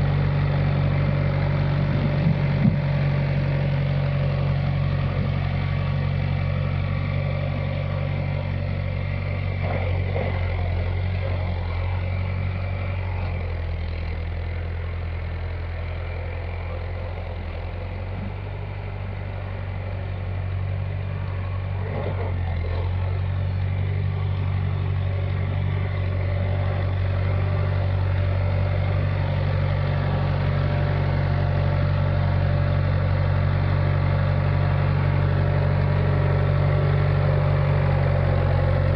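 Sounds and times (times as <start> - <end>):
backhoe engine running: 0.0 - 38.9.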